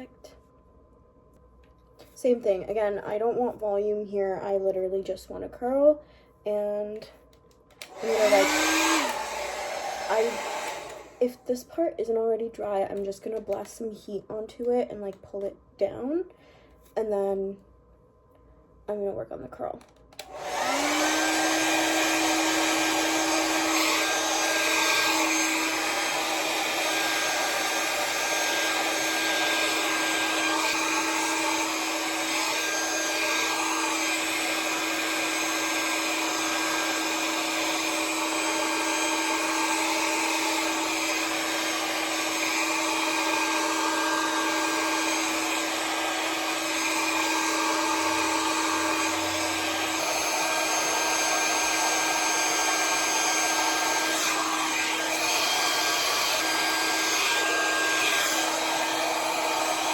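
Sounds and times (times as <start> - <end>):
hair dryer running: 7.8 - 11.5, 20.1 - 59.9.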